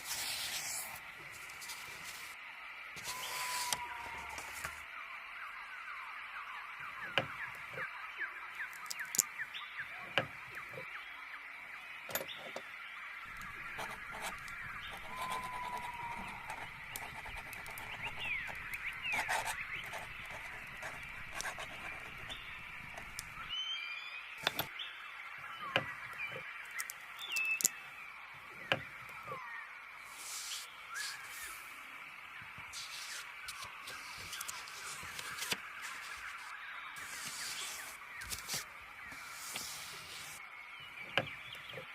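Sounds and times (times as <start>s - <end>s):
sharp clicks and scratches: 13.3s - 23.5s, 24.4s - 24.7s, 32.6s - 40.4s.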